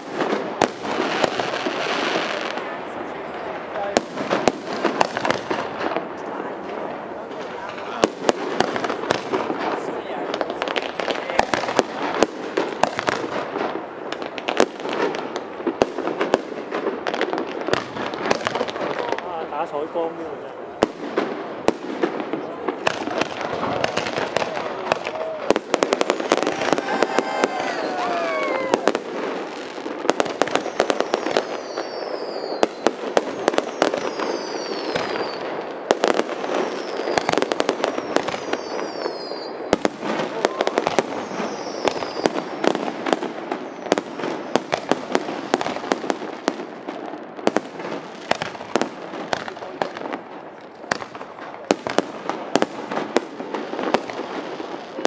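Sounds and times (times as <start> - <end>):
fireworks bangs and crackles: 0.0 - 55.0
falling whistles: 30.6 - 32.8, 33.6 - 35.5, 38.0 - 39.6, 41.2 - 42.3.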